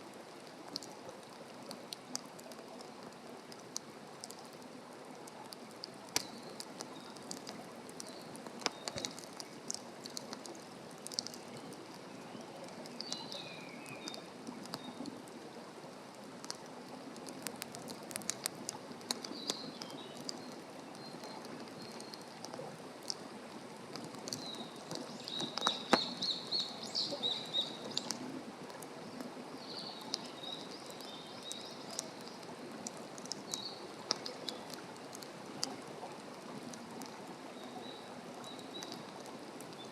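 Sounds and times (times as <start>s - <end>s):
campfire crackling and popping: 0.1s - 39.9s
small birds chirping: 6.1s - 15.0s, 19.1s - 22.4s, 24.3s - 28.2s, 29.0s - 32.5s, 33.3s - 34.8s.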